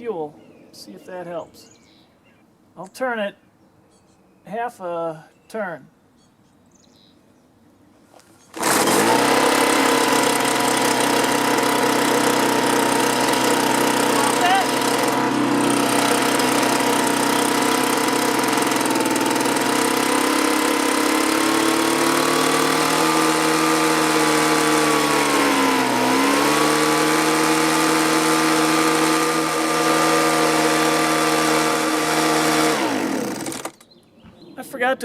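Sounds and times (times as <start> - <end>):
two-stroke leaf blower engine: 8.5 - 33.8.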